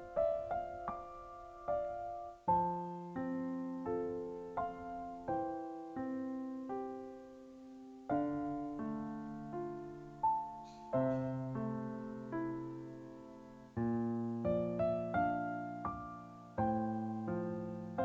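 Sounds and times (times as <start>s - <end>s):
gentle piano chords: 0.0s - 18.0s.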